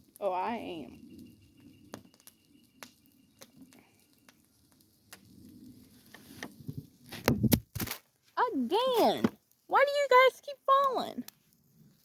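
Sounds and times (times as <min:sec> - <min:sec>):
campfire crackling: 0:00.0 - 0:12.0
sharp pops and clicks: 0:01.9 - 0:05.4, 0:06.1 - 0:08.2.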